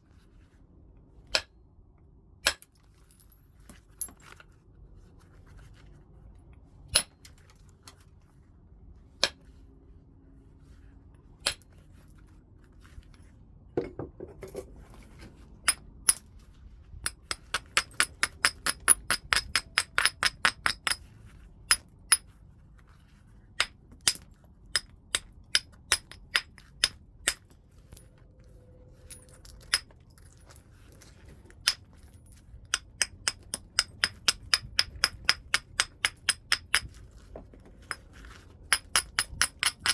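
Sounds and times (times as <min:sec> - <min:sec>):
tool striking stone: 0:17.0 - 0:21.1, 0:23.6 - 0:28.0, 0:32.7 - 0:37.0, 0:38.7 - 0:39.9.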